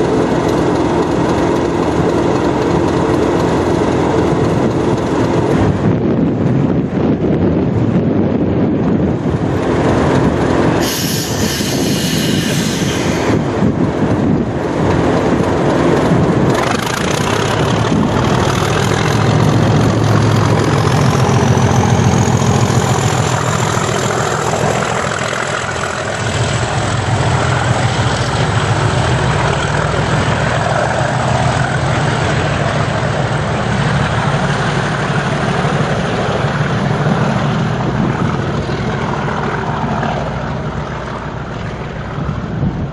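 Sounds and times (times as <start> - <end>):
diesel locomotive engine under load: 0.0 - 42.9
hiss: 10.8 - 13.4.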